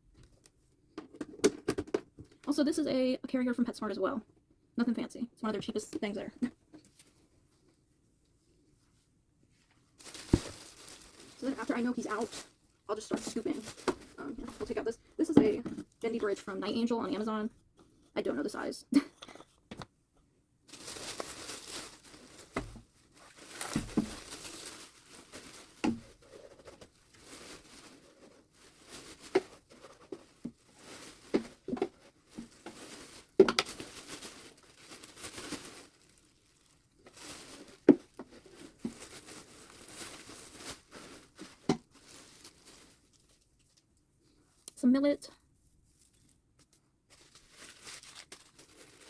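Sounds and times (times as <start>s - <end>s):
bedding rustling and crinkling: 8.6s - 17.4s, 20.6s - 44.6s, 45.5s - 49.0s.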